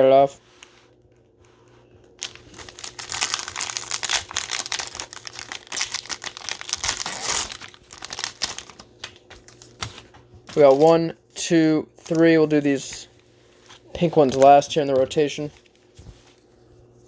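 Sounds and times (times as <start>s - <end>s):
cellophane crinkling and tearing: 2.1s - 11.0s.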